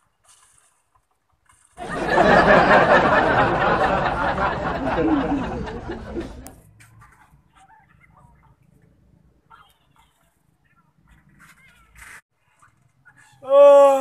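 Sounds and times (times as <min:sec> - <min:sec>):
crowd laughter: 0:01.8 - 0:06.6.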